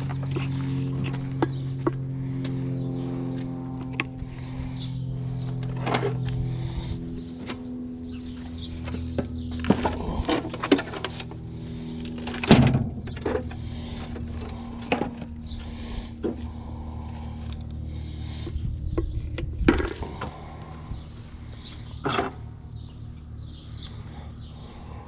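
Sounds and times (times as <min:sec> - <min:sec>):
low hum: 0:00.0 - 0:25.0
junk clanking and rattling: 0:05.5 - 0:06.4, 0:08.9 - 0:11.4, 0:12.0 - 0:15.4, 0:21.9 - 0:22.6.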